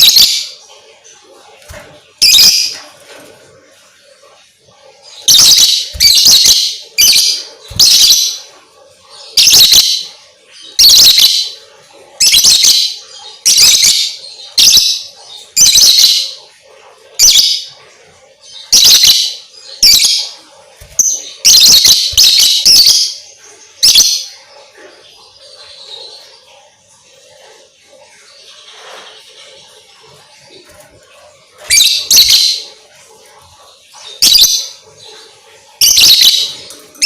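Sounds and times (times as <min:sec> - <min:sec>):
lovebird chirping: 0:00.0 - 0:00.6, 0:01.6 - 0:02.9, 0:05.1 - 0:11.6, 0:12.2 - 0:16.4, 0:18.6 - 0:24.5, 0:31.6 - 0:32.8, 0:34.0 - 0:37.0.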